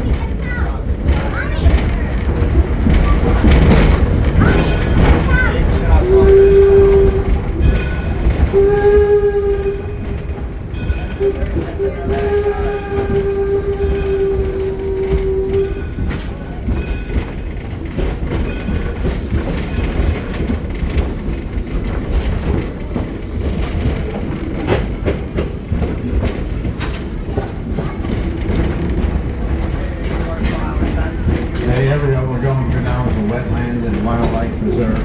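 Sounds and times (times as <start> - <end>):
train rumbling on rails: 0.0 - 35.0
steam locomotive whistle: 5.7 - 10.4, 11.1 - 16.1.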